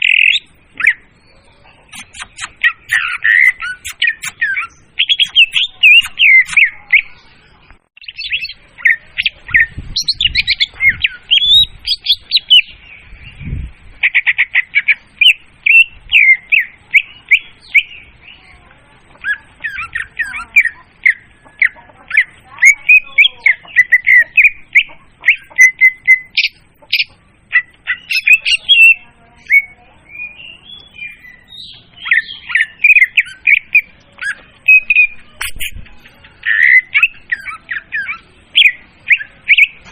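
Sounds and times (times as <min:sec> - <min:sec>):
bird song chirps and trills: 0:00.0 - 0:39.9.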